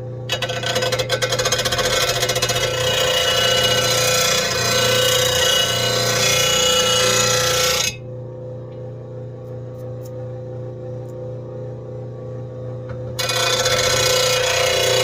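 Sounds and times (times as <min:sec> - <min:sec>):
grinding wheel grinding steel: 0:00.3 - 0:08.0, 0:13.2 - 0:15.0.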